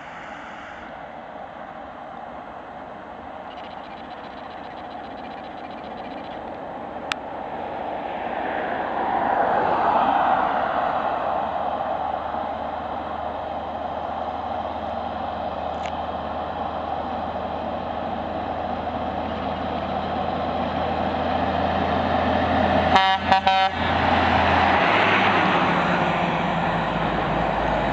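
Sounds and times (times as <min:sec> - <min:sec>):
truck engine passing: 0:07.8 - 0:27.9
horn toots: 0:22.9 - 0:23.8.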